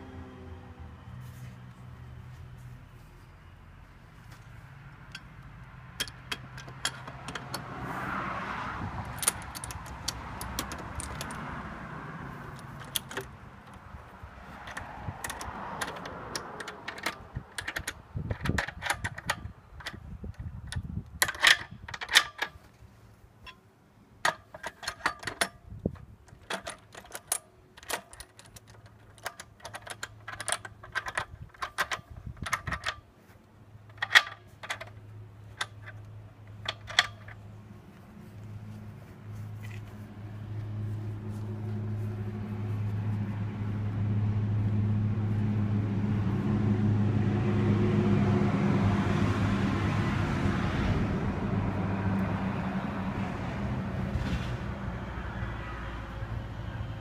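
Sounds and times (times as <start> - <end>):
metallic clicks and clinks: 5.1 - 7.7, 9.0 - 11.5, 12.4 - 13.8, 14.6 - 22.6, 24.2 - 33.0, 33.9 - 37.5.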